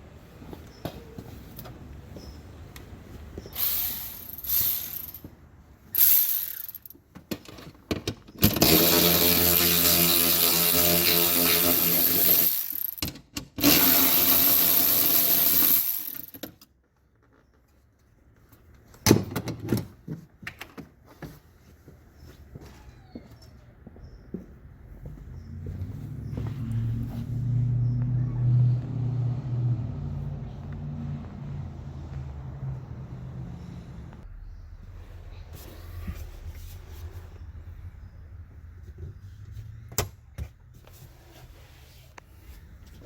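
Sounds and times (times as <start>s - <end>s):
power tool motor running: 3.6s - 5.2s, 8.5s - 13.0s, 13.6s - 16.3s.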